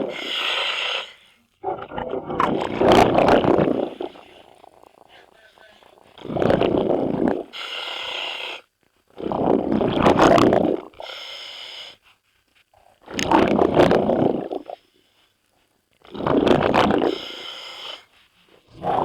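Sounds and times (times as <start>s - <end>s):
regulator hiss on inhale: 0.0s - 1.5s, 7.4s - 8.7s, 11.0s - 12.2s, 17.0s - 18.7s
gurgling exhaled bubbles: 1.6s - 7.5s, 9.2s - 10.9s, 13.1s - 14.8s, 16.1s - 17.3s, 18.7s - 19.0s.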